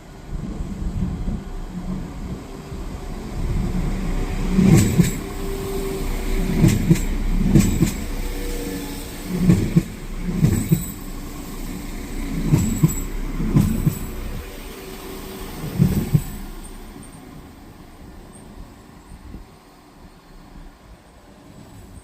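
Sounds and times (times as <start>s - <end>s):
train running rumble: 0.0s - 22.0s
train wheels knocking on rail joints: 4.4s - 14.6s, 15.3s - 16.7s.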